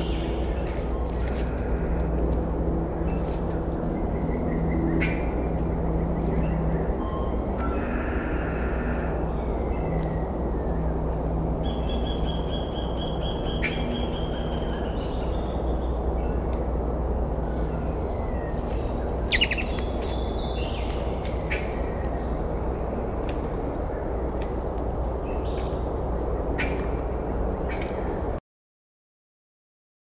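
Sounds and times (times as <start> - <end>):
steady low rumble: 0.0 - 28.4
small birds calling: 17.6 - 22.2.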